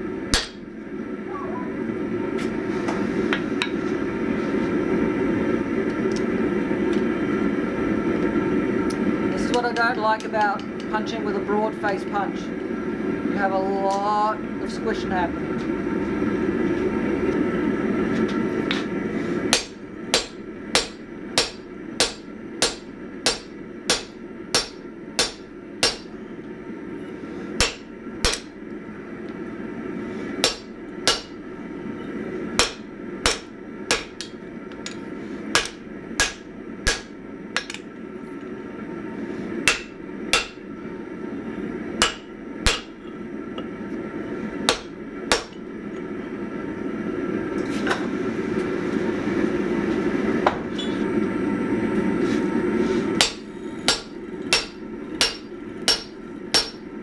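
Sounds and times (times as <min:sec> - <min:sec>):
steady low hum: 0:00.0 - 0:57.0
hammer striking metal: 0:00.4 - 0:00.7, 0:19.5 - 0:26.2, 0:27.6 - 0:28.5, 0:30.4 - 0:31.4, 0:32.6 - 0:34.4, 0:35.6 - 0:37.8, 0:39.7 - 0:40.6, 0:42.0 - 0:43.0, 0:44.7 - 0:45.6, 0:53.2 - 0:56.9.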